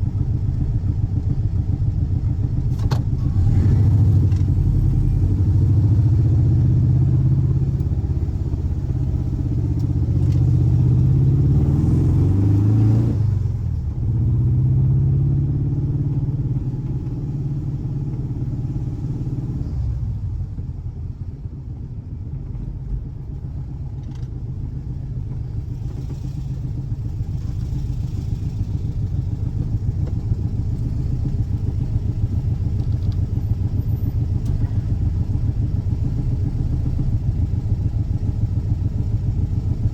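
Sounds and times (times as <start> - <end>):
flat-four engine running: 20.4 - 39.9.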